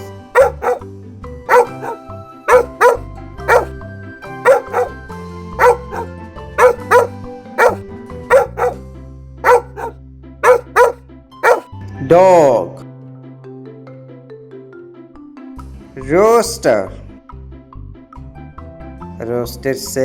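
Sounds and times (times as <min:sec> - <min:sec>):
dog barking: 0:00.0 - 0:00.8, 0:01.5 - 0:08.8, 0:09.4 - 0:11.7
background music: 0:00.0 - 0:20.0.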